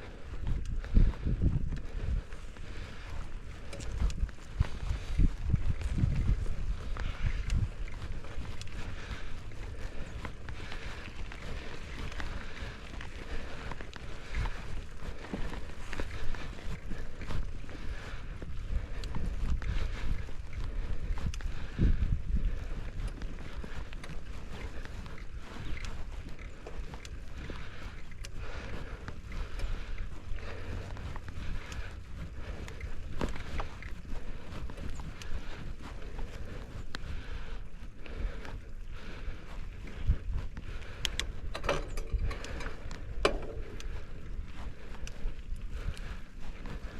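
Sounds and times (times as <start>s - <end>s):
bike clicks and rattles: 0.0s - 46.9s
wind rumbling on microphone: 0.0s - 46.9s.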